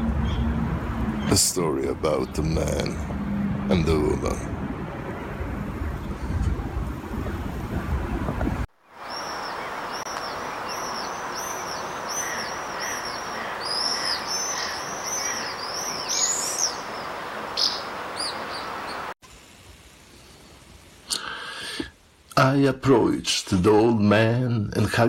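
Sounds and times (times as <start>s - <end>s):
songbird chirping: 0.0s - 4.4s, 8.8s - 19.2s
outdoor background hiss: 0.0s - 25.0s.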